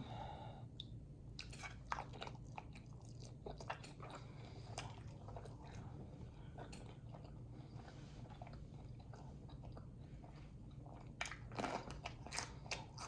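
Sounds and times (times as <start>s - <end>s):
chewing: 0.8s - 13.0s.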